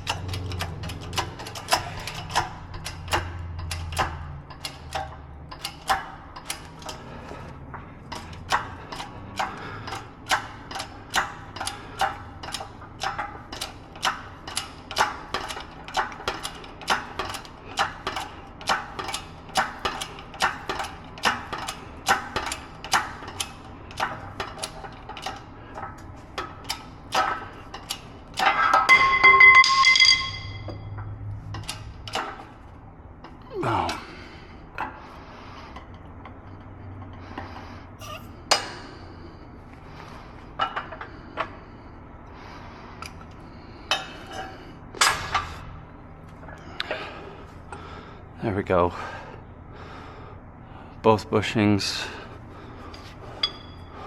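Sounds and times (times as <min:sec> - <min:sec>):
ringing metallic clank: 0:28.4 - 0:31.2.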